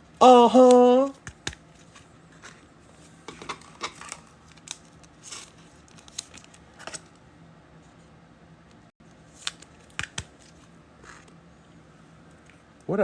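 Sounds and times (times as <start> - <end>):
trading cards snapping and rustling: 0.5 - 2.6, 3.3 - 7.2, 9.3 - 11.3.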